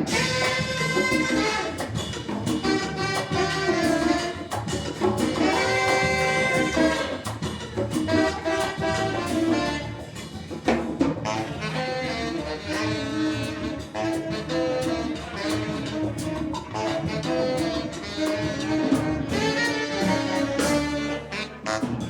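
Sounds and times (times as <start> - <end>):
drum kit hits: 0.0 - 9.8
horns holding chords: 0.0 - 10.5, 11.2 - 22.0.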